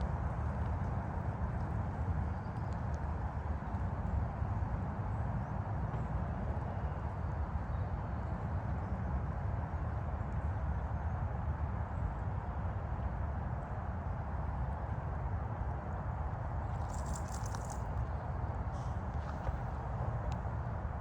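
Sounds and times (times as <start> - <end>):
distant highway traffic: 13.7 - 21.0.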